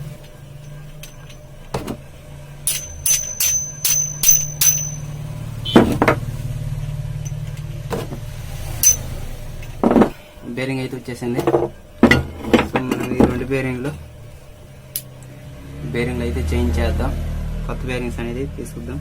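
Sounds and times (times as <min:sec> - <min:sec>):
steady low hum: 0:00.0 - 0:19.0
metal parts clinking: 0:00.2 - 0:02.0, 0:02.6 - 0:05.3, 0:08.8 - 0:10.1.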